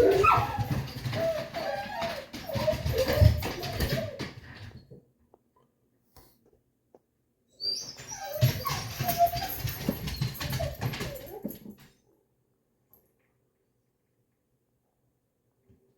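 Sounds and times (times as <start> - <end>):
dog whining and whimpering: 0.0 - 4.8, 7.5 - 11.8.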